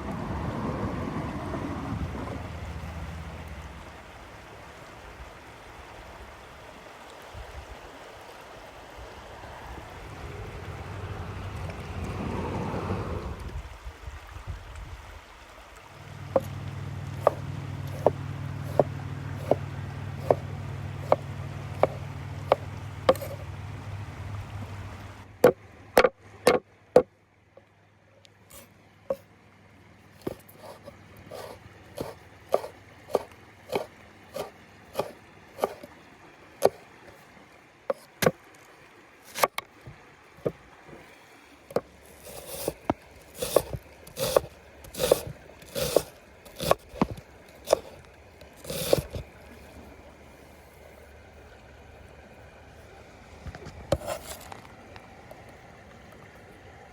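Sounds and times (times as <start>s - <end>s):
low steady hum: 15.8s - 56.9s
knife chopping on wooden board: 17.2s - 19.6s, 20.2s - 20.4s, 21.0s - 23.4s, 30.3s - 35.9s, 41.7s - 42.8s, 43.4s - 48.0s, 48.6s - 49.2s.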